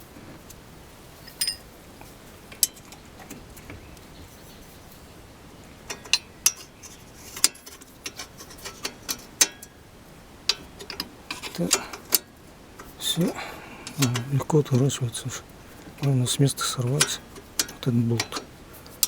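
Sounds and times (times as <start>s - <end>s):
metal spanners clinking: 1.2s - 1.7s, 5.8s - 9.8s, 10.5s - 19.0s.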